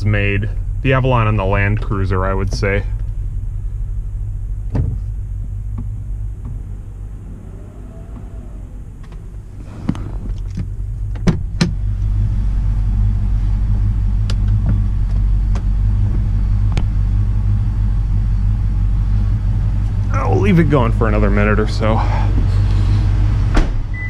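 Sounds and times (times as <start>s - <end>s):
car engines idling: 0.0s - 24.0s.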